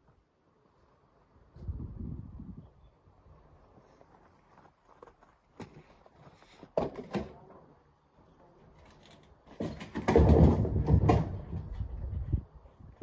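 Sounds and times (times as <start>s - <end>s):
stones tumbling into truck bed: 9.4s - 11.9s.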